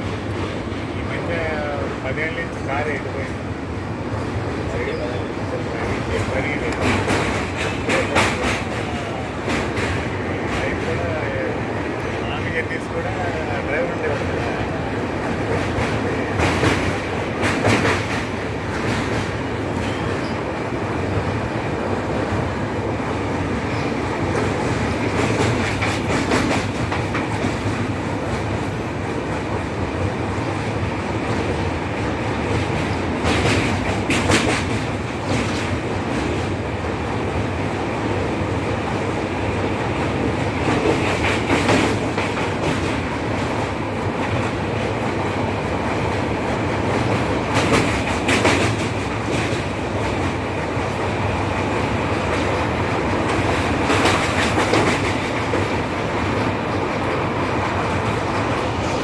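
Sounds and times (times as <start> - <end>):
train wheels rumbling on rail: 0.0 - 59.0
wheels clicking over rail joints: 15.2 - 20.4, 23.5 - 29.3, 30.4 - 36.6, 40.0 - 58.5.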